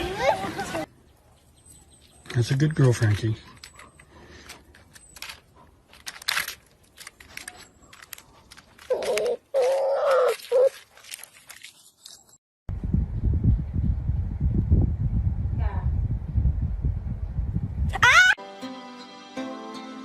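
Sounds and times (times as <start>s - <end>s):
clicks and rustling: 3.5s - 12.4s
animal calling: 8.9s - 10.8s.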